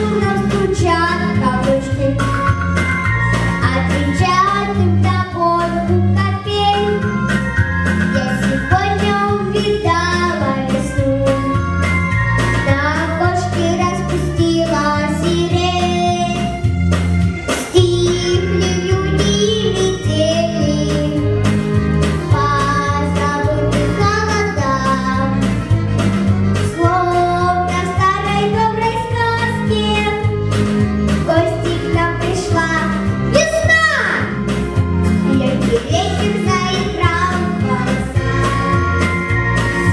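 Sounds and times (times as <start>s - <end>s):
girl singing: 0.0s - 2.3s, 3.6s - 7.0s, 8.2s - 11.6s, 12.6s - 16.6s, 17.6s - 21.3s, 22.2s - 25.4s, 26.7s - 30.3s, 31.3s - 34.3s, 35.3s - 38.2s
backing track with pulsing bass: 0.0s - 39.9s.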